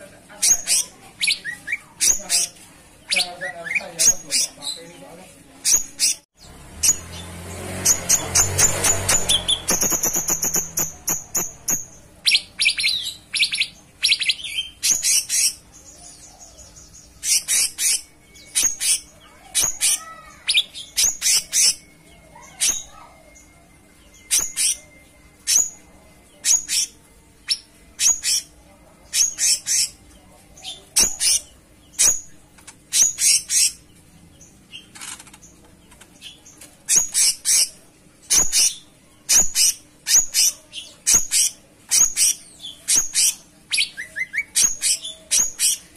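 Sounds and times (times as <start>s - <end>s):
bird chirping song: 0.3s - 45.9s.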